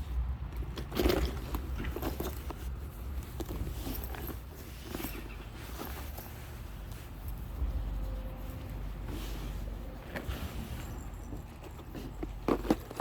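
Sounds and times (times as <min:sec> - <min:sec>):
bag rustling: 0:00.9 - 0:13.0
low hum: 0:07.2 - 0:11.5.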